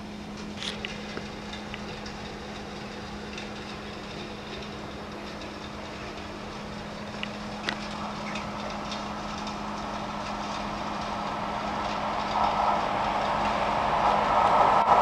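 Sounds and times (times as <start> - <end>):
freight train approaching: 0.0 - 15.0
steady low hum: 0.0 - 15.0.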